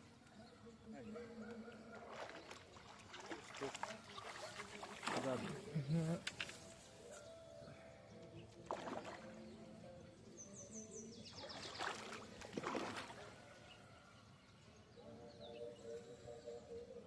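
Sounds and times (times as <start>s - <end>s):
bird chirping: 5.6s - 12.6s, 13.4s - 17.0s.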